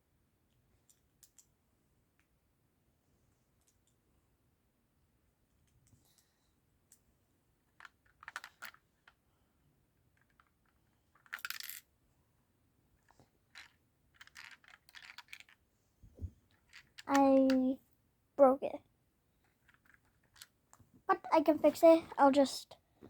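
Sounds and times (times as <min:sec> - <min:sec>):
plastic bricks clicking and rattling: 0:07.8 - 0:09.2, 0:10.2 - 0:11.8, 0:13.5 - 0:15.6, 0:16.5 - 0:17.7, 0:19.5 - 0:20.6.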